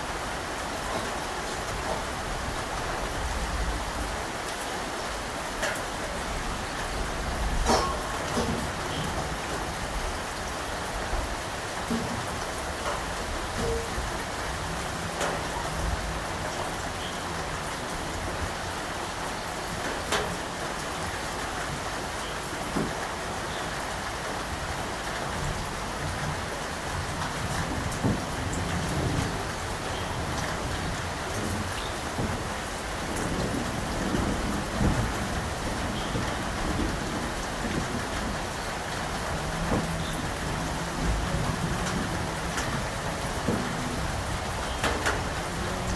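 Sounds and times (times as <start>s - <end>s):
raindrops striking close by: 0.0s - 45.9s
steady rain hiss: 0.0s - 45.9s
low thunder rumbling: 25.4s - 45.9s.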